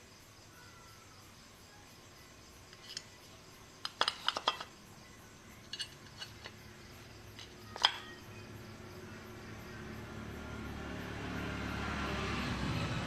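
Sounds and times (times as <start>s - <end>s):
small metal pieces clinking: 3.8s - 4.8s, 5.6s - 6.6s, 7.3s - 8.2s.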